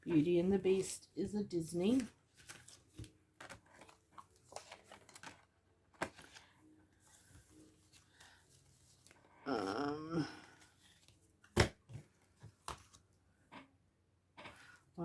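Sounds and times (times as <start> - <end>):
paper rustling: 1.6 - 9.3.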